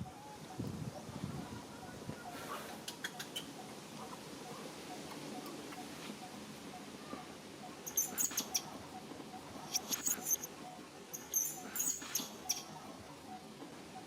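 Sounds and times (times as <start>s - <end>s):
baby monkey squeaking: 7.8s - 8.7s, 9.7s - 10.5s, 11.1s - 12.7s.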